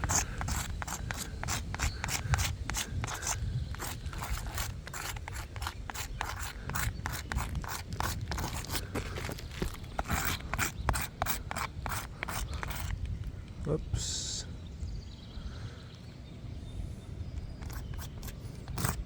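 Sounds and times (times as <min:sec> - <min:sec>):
marker scratching on shingle: 0:00.0 - 0:13.3, 0:17.4 - 0:19.0.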